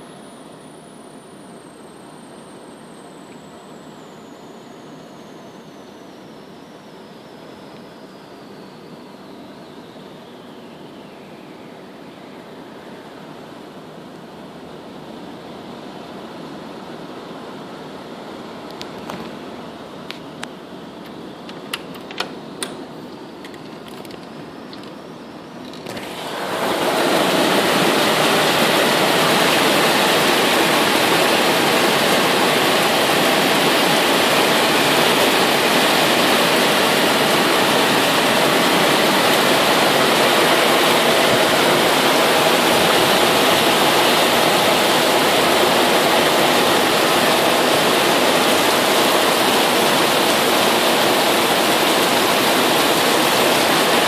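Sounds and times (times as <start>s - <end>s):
heavy rain downpour: 26.2s - 54.0s.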